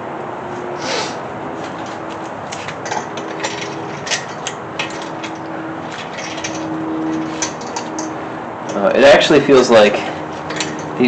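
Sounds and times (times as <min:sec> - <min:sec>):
metallic clinks of bolts: 0:02.8 - 0:08.8, 0:10.3 - 0:11.0.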